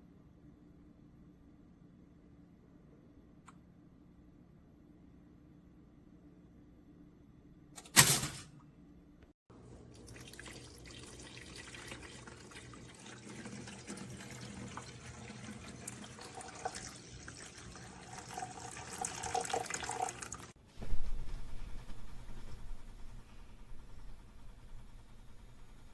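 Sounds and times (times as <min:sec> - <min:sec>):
sharp click: 0:07.8 - 0:08.5
running water: 0:09.9 - 0:20.6.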